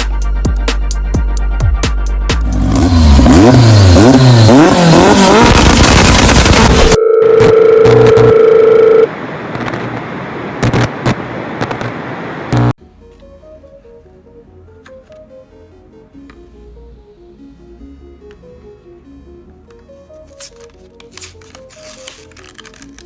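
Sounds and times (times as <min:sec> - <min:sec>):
car engine revving: 0:02.4 - 0:06.9.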